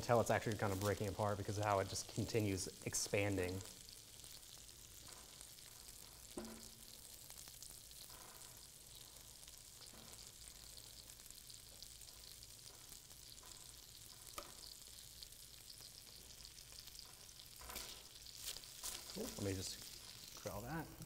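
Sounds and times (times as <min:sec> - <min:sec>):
food sizzling faintly in a pan: 0:00.0 - 0:21.0
spatula stirring: 0:16.1 - 0:20.5.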